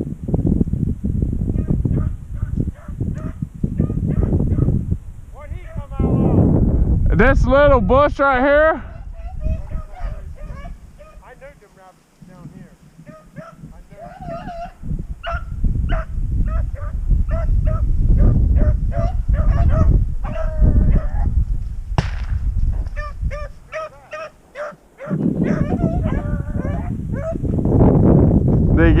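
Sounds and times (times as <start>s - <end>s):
dogs baying and yelping: 1.6s - 4.7s, 8.9s - 11.2s, 13.0s - 21.4s, 22.9s - 27.5s
sharp crack: 21.9s - 23.0s.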